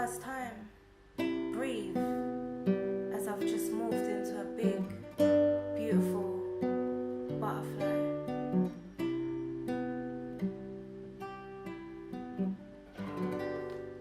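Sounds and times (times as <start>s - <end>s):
acoustic guitar chords: 0.0s - 14.0s.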